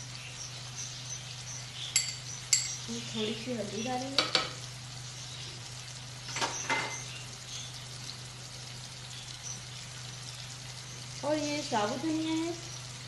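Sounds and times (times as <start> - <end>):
food sizzling in a pan: 0.0 - 13.0
clinks: 2.0 - 2.8.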